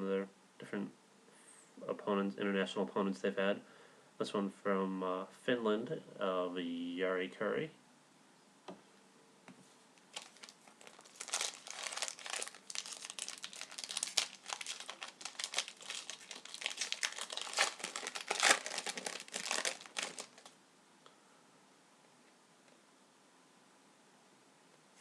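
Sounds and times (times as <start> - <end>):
plastic wrapper crinkling and tearing: 10.0 - 20.6.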